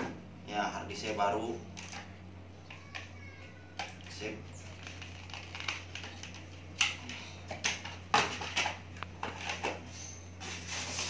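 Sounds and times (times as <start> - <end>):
steady low hum: 0.0 - 11.0
packaging rustles and scrapes: 4.7 - 6.6, 8.3 - 11.0.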